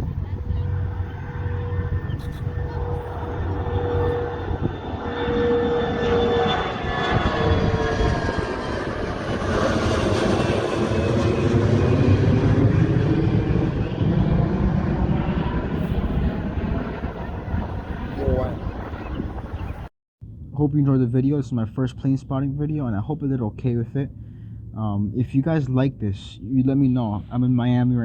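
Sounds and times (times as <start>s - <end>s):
jet airliner engine roar: 0.0s - 19.9s.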